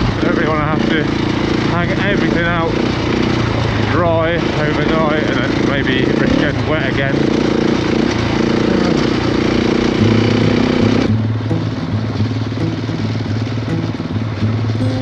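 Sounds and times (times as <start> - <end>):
motorcycle engine running: 0.0 - 15.0
background music with bass line: 10.0 - 15.0.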